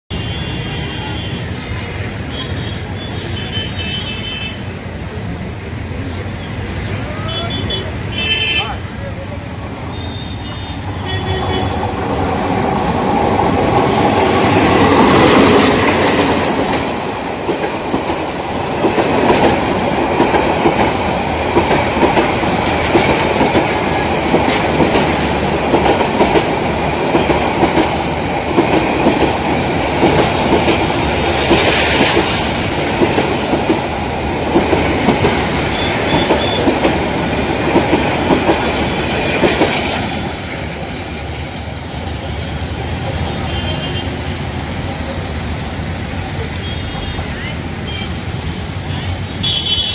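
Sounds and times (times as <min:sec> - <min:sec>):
diesel locomotive engine: 0:00.1 - 0:49.9
train wheels clattering over rail joints: 0:11.7 - 0:43.2.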